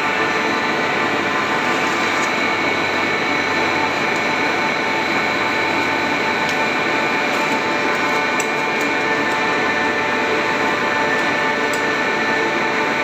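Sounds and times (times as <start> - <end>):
recycling machine running: 0.0 - 13.0.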